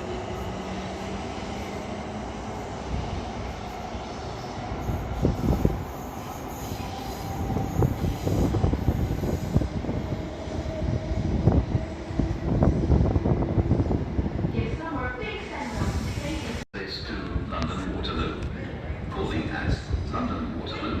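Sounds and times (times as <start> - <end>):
wheels squealing on rails: 2.5 - 11.6.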